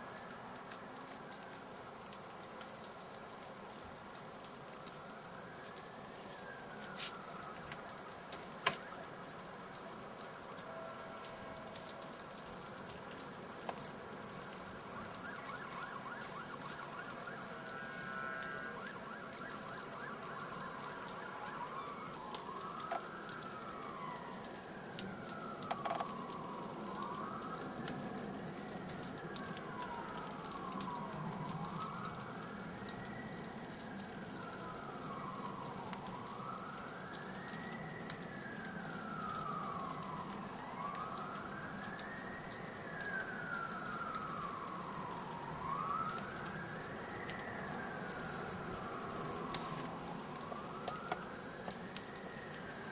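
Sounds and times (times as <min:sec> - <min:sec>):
emergency vehicle siren wailing: 0:00.0 - 0:52.9.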